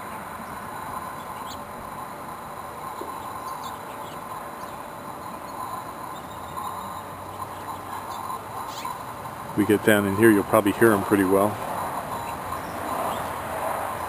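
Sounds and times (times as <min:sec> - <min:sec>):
bees humming: 0:00.0 - 0:14.0
faint high chirps: 0:02.8 - 0:09.1.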